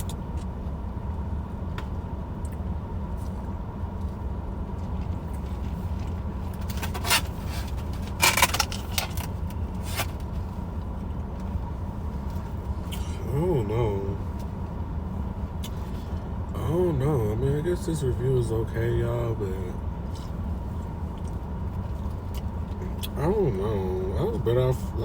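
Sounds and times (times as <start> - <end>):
crackles and rustles of eating: 0.0 - 13.1, 19.9 - 23.2
steady low rumble: 0.0 - 25.0.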